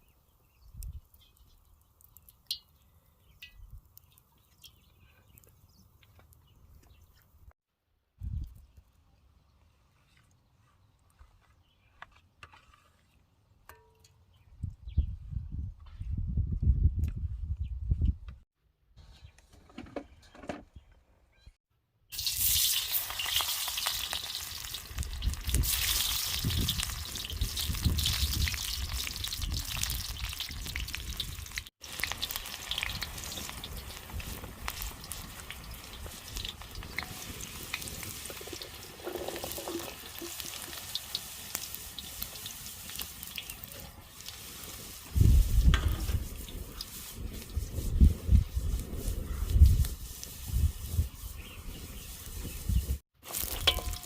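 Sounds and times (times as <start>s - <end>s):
food sizzling in oil: 22.1s - 54.0s.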